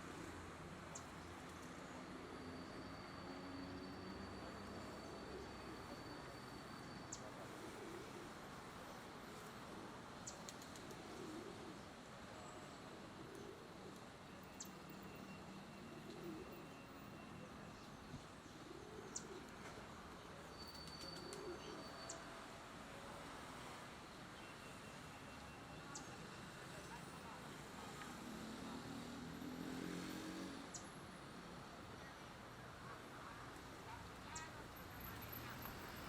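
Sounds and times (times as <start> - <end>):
bird cooing: 7.4 - 8.5, 10.7 - 11.9, 15.8 - 16.8, 18.6 - 19.8.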